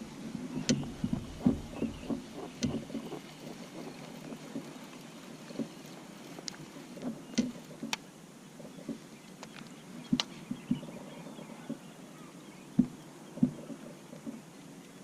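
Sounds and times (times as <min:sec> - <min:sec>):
sharp clicks: 0:00.6 - 0:04.7, 0:06.4 - 0:08.0
knocks and thumps of gear: 0:00.6 - 0:04.8, 0:05.5 - 0:08.0, 0:08.6 - 0:10.9, 0:12.8 - 0:14.4.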